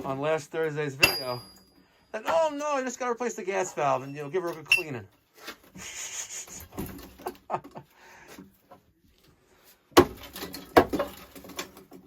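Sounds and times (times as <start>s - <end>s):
small knocks and scrapes: 3.9s - 7.3s.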